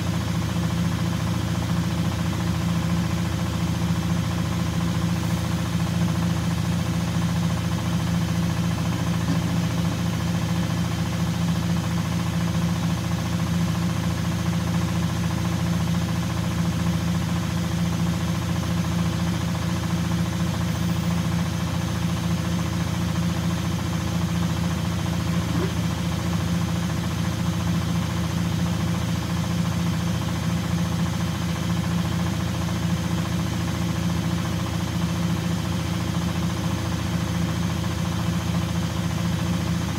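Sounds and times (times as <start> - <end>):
washing machine motor hum: 4.7 - 12.5.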